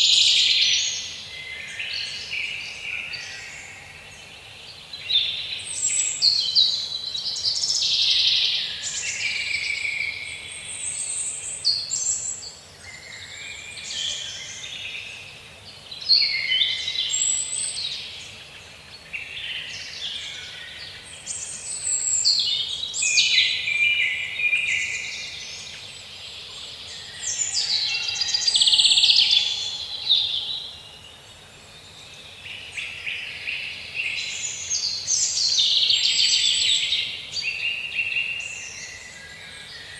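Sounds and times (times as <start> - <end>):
birds singing and calling: 15.9 - 39.9.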